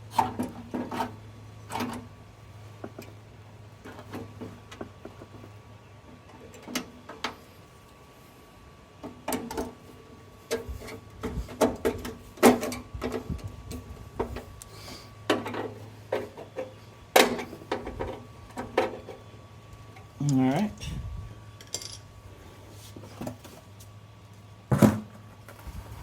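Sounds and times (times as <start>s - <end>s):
tools and parts clattering: 21.6s - 22.1s.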